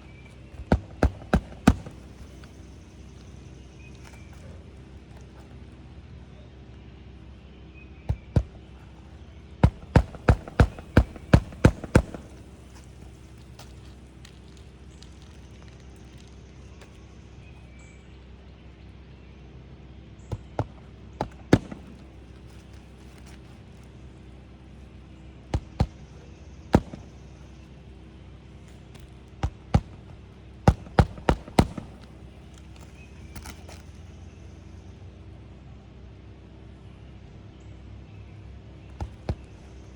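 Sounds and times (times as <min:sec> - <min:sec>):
hammer striking roofing nails: 0:00.6 - 0:02.5, 0:09.6 - 0:12.8, 0:20.3 - 0:22.1, 0:26.8 - 0:27.1, 0:29.4 - 0:32.2.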